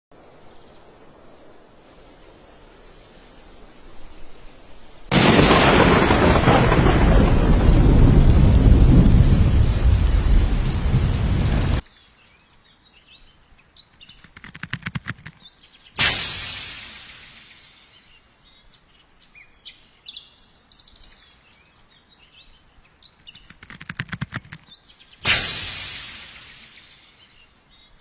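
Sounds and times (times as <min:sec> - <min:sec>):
quick run of clicks: 0:14.2 - 0:15.4, 0:23.3 - 0:24.7.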